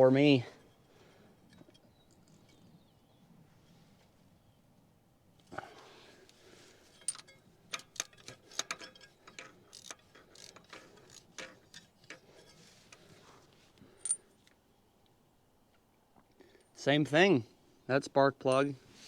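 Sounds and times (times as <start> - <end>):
socket ratchet clicking: 7.1 - 11.8.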